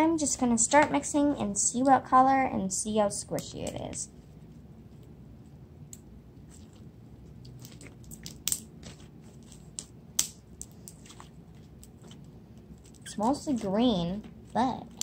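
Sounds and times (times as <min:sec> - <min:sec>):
slime being squished by hand: 0:06.4 - 0:13.2.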